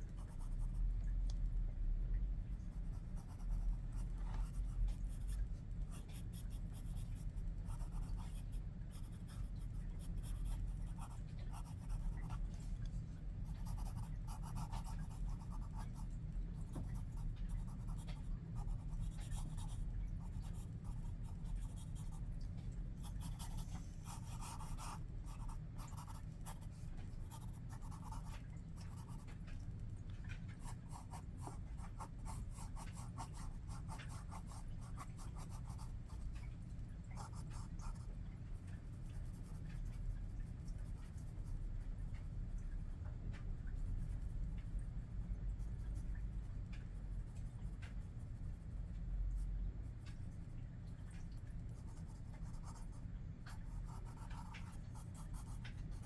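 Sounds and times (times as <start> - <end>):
steady low hum: 0.0 - 56.0
pencil scratching on paper: 23.1 - 26.7, 53.9 - 56.0.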